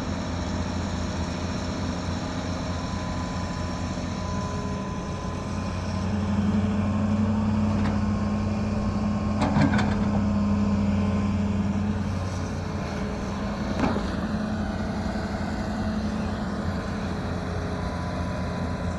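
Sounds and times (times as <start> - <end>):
excavator engine running: 0.1 - 18.9.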